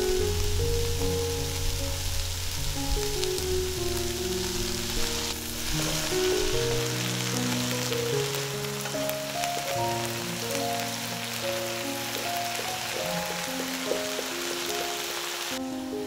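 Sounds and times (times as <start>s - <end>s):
soft background music: 0.0s - 16.0s
vegetables sizzling in a wok: 0.0s - 16.0s.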